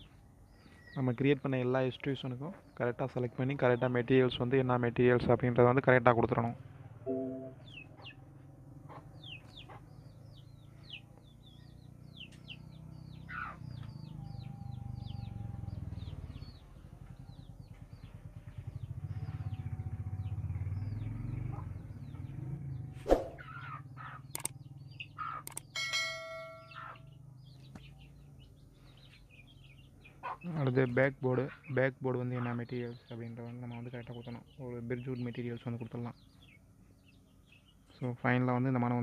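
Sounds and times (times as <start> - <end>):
small birds chirping: 0.0 - 39.0
low hum: 6.7 - 7.7
ringing call: 7.1 - 7.6, 25.6 - 27.2
sharp clicks: 24.3 - 24.6, 25.4 - 25.7.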